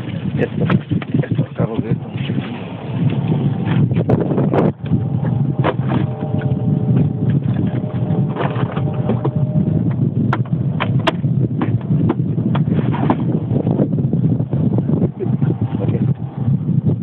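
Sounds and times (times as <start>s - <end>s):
wind rumbling on microphone: 0.0s - 17.0s
scattered knocks: 4.7s - 13.3s.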